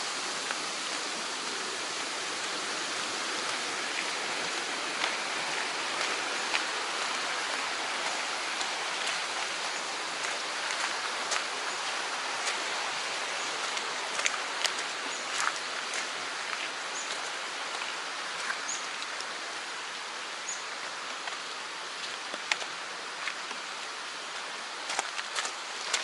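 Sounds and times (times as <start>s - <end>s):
stream water rushing: 0.0s - 26.0s.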